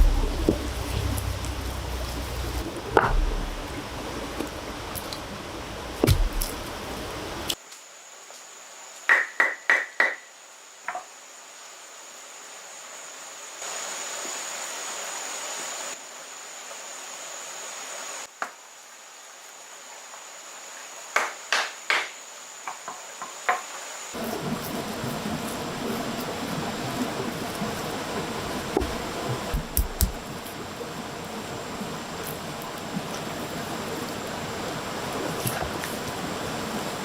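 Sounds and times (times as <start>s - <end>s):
hard tool striking: 0.0s - 3.8s
steady high-pitched whine: 0.0s - 7.5s.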